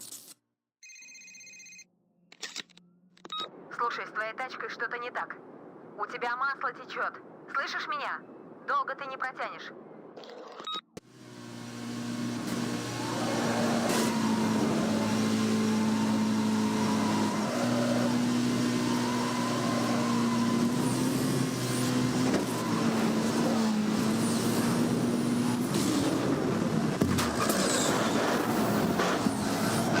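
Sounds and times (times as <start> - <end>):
car engine running: 11.1 - 30.0.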